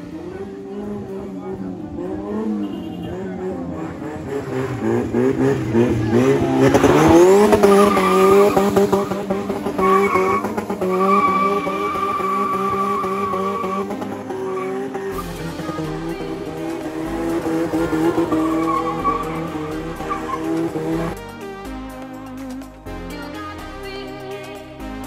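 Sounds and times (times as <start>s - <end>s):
car engine revving: 0.0s - 22.9s
tyres squealing: 6.2s - 16.0s, 17.4s - 21.2s.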